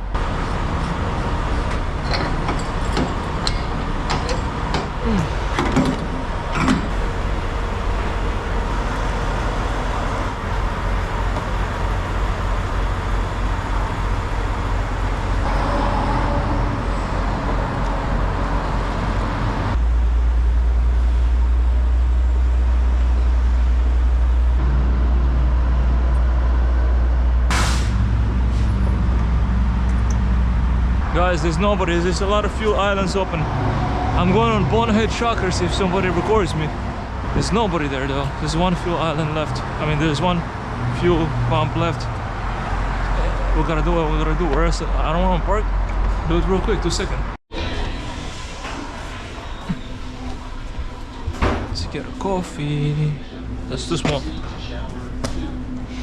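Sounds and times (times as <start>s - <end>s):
diesel truck engine running: 0.0s - 47.4s
short hiss: 27.5s - 28.0s.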